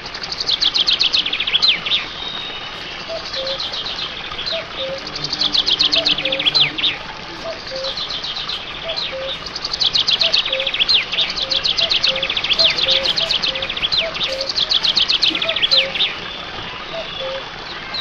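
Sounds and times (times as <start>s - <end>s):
small birds chirping: 0.0s - 18.0s
faint low repeating note: 4.2s - 8.3s.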